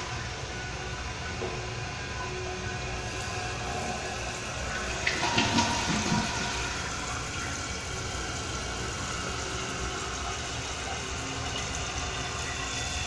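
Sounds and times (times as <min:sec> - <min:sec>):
toilet tank refilling: 0:03.0 - 0:13.0
water gurgle: 0:03.0 - 0:13.0.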